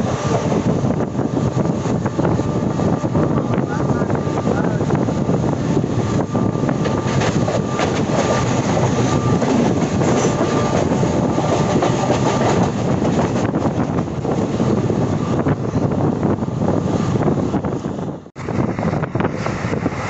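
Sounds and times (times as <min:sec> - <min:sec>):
train wheels clattering over rails: 0:06.0 - 0:14.5.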